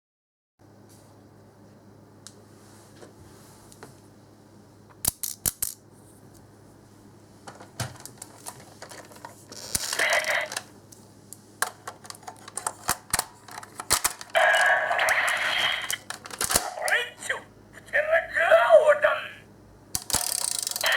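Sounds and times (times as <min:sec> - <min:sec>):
plastic toy clicks and snaps: 0:05.0 - 0:05.8, 0:11.6 - 0:16.9, 0:20.0 - 0:20.9
electronic toy sound: 0:09.9 - 0:10.6, 0:14.4 - 0:16.0.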